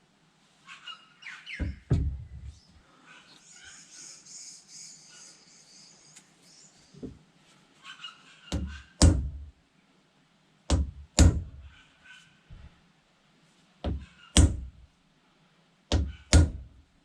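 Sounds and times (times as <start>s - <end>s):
birds chirping faintly: 0.6s - 9.0s
heavy knocks of handle into maul: 1.6s - 2.2s, 10.7s - 11.5s.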